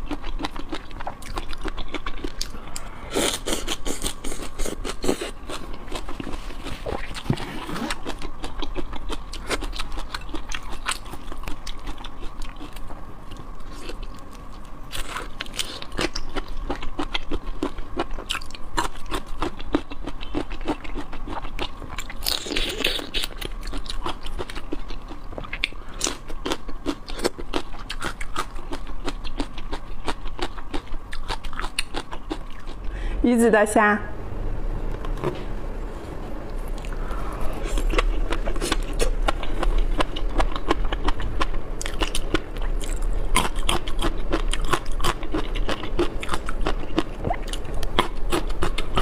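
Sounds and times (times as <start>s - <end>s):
person chewing crunchy shrimp: 0.0s - 33.1s, 35.0s - 49.0s.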